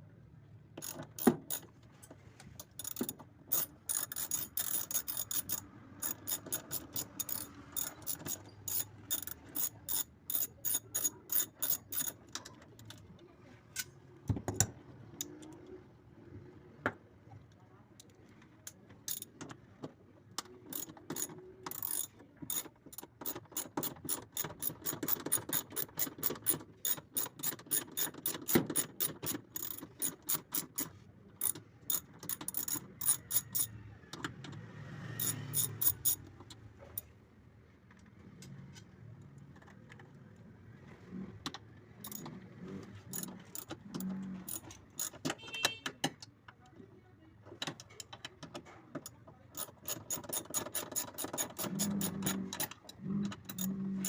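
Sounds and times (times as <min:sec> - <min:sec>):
ratchet wrench clicking: 0:00.8 - 0:01.7, 0:02.6 - 0:12.2, 0:20.7 - 0:33.8, 0:35.2 - 0:36.3, 0:42.0 - 0:42.3, 0:43.1 - 0:43.7, 0:44.5 - 0:45.4, 0:49.6 - 0:53.7.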